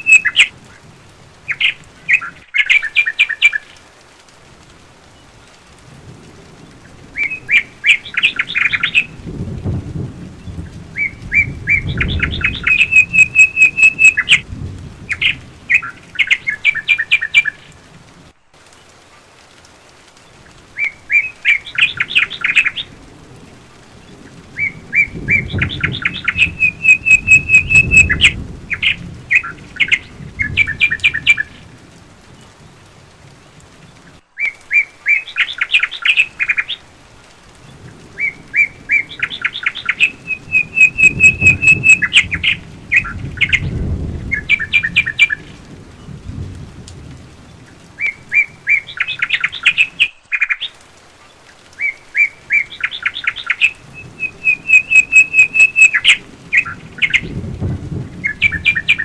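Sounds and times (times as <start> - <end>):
songbird singing: 0.0 - 4.0, 6.5 - 9.3, 10.3 - 19.0, 19.7 - 23.0, 23.9 - 36.9, 37.6 - 46.3, 47.3 - 57.4, 58.1 - 59.0.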